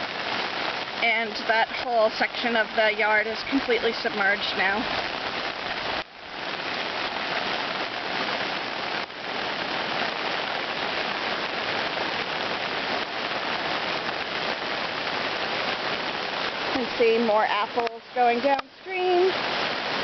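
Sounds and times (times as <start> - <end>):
flooded stream rushing: 0.0 - 20.0
heavy rain hissing: 0.0 - 20.0.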